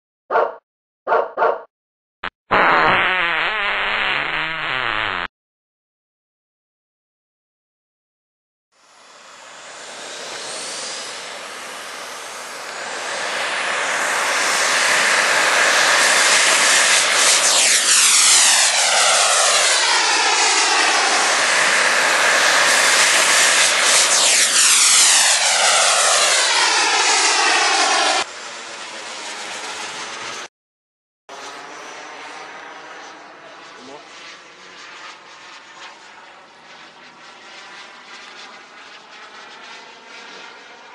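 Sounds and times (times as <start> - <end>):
model jet turbine engine: 8.8 - 30.5, 31.3 - 40.9.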